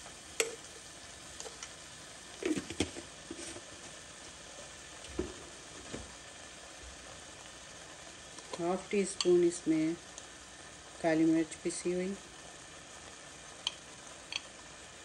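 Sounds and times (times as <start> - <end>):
mince sizzling in a pot: 0.0 - 15.0.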